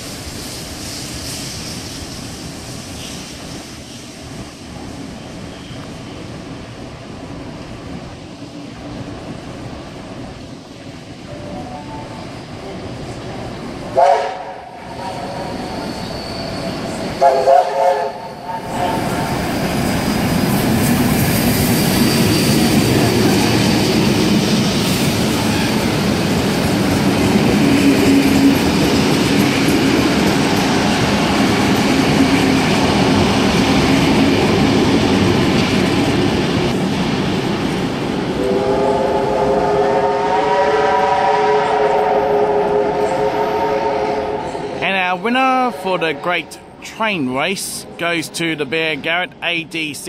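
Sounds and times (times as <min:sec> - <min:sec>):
train rumbling with wheel clatter: 0:00.0 - 0:49.4
train horn long note: 0:14.0 - 0:15.6, 0:17.2 - 0:19.3, 0:38.4 - 0:44.8.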